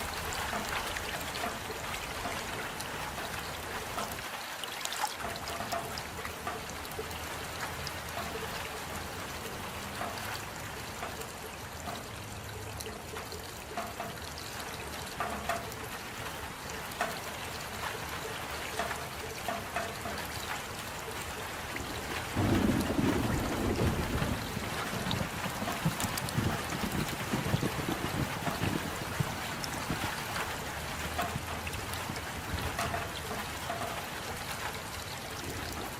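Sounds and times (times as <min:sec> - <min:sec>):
raindrops ticking: 0:00.0 - 0:35.9
steady rain: 0:00.0 - 0:35.9
low rumble of thunder: 0:22.0 - 0:30.6.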